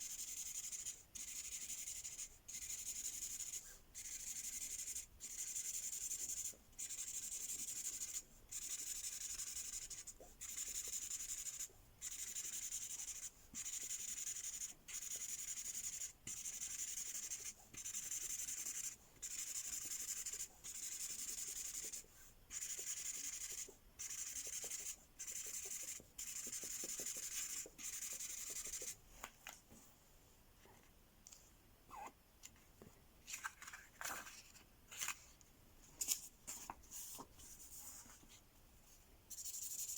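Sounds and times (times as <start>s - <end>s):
marker scribbling on paper: 0.0s - 29.0s, 39.3s - 39.9s.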